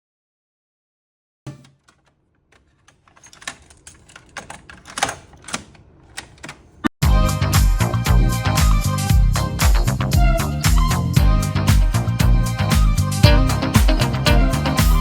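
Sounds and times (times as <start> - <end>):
cassette player keys clicking: 1.5 - 6.9
funk music playing: 7.0 - 15.0.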